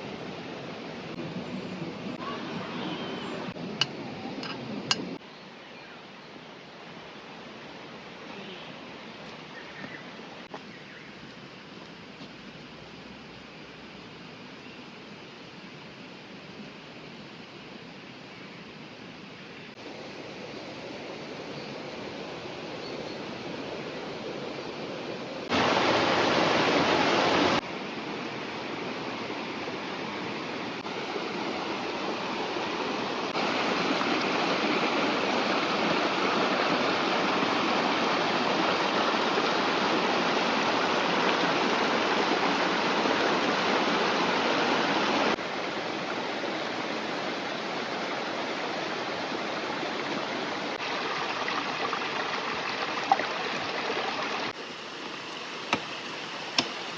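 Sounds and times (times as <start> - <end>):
river rushing: 19.8 - 56.9.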